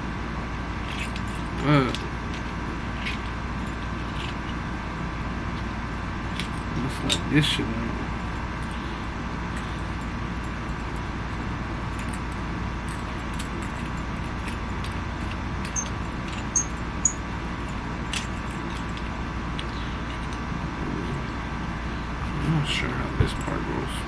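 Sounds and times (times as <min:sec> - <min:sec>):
steady hum: 0:00.0 - 0:24.0
small parts clicking and tapping: 0:00.8 - 0:05.3, 0:05.9 - 0:07.3, 0:08.1 - 0:20.4.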